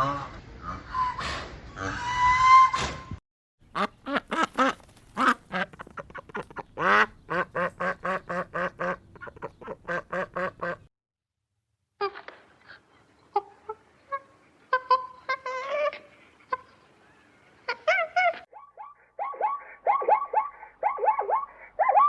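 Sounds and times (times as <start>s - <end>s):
duck quacking: 3.7s - 10.9s.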